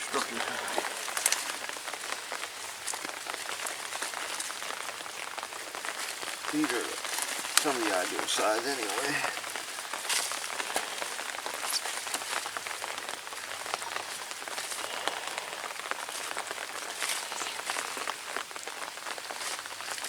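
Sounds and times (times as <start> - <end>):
rain pattering on an umbrella: 0.0 - 20.0.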